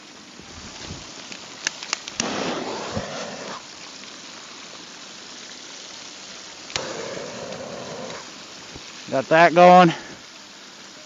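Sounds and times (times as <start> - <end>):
turkey frying in hot oil: 0.0 - 11.0
burner lighting whoosh: 0.6 - 3.9, 6.7 - 8.4.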